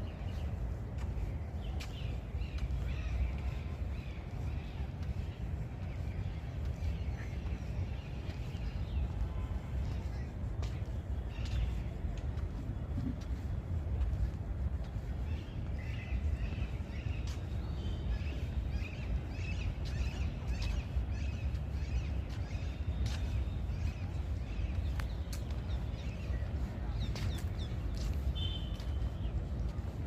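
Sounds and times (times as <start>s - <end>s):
steady low rumble: 0.0s - 30.0s
birds chirping: 14.8s - 30.0s.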